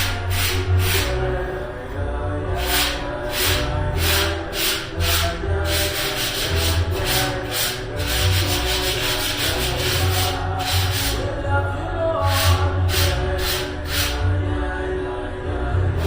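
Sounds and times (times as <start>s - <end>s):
sandpaper rubbing a ceiling: 0.0s - 1.4s, 2.6s - 11.3s, 12.2s - 14.2s
background music with held tones: 0.0s - 16.0s.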